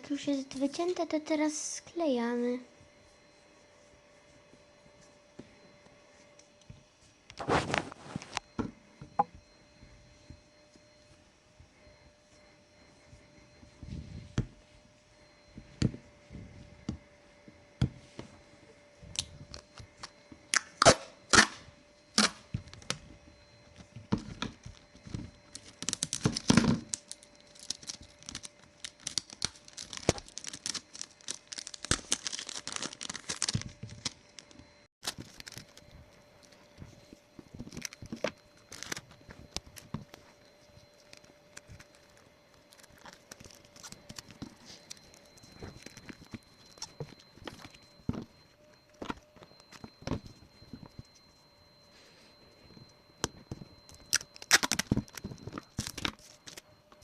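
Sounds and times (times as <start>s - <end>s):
paper crinkling: 24.7s - 48.3s, 53.6s - 57.0s.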